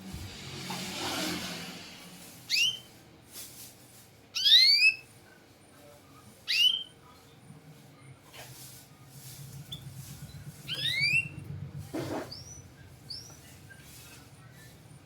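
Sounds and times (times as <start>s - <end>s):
canary whistled chirps: 2.5s - 2.9s, 4.4s - 5.0s, 6.5s - 6.9s, 10.7s - 11.4s.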